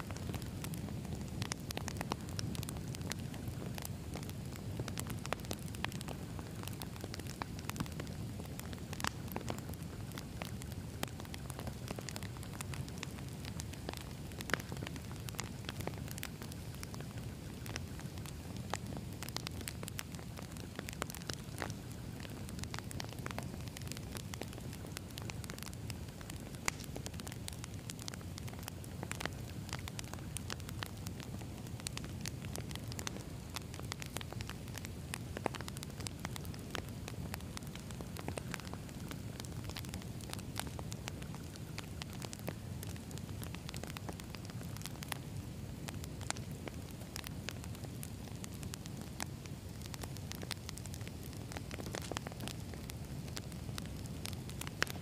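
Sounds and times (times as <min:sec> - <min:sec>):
fire crackling and popping: 0:00.0 - 0:55.0
low rumble of flames: 0:00.0 - 0:55.0.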